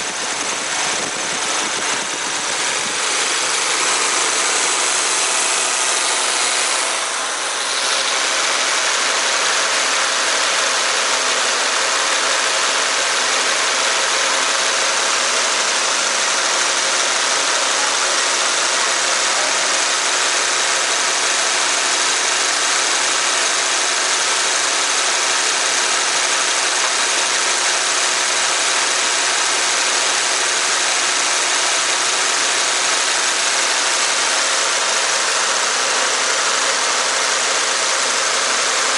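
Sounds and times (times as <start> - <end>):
air conditioning compressor noise: 0.0 - 9.2
car engine idling: 0.0 - 38.9.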